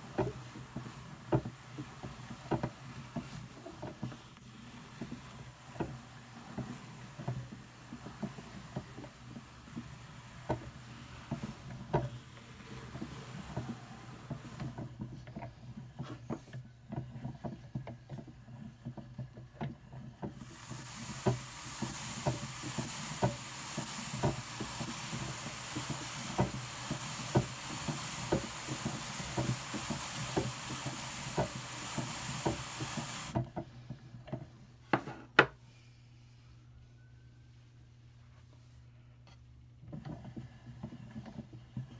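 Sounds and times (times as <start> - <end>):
hiss of wool on carding teeth: 0.0 - 14.8, 20.4 - 33.4.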